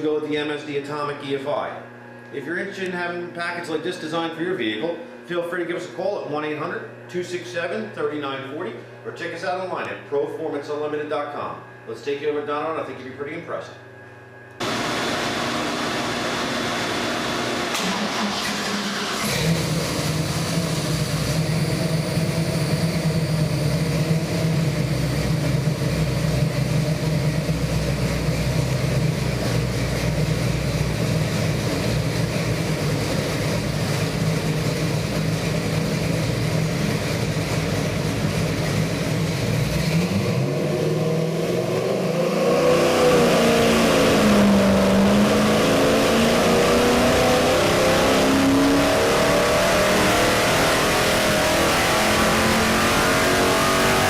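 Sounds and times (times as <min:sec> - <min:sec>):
car engine idling and revving: 0:14.6 - 0:54.0.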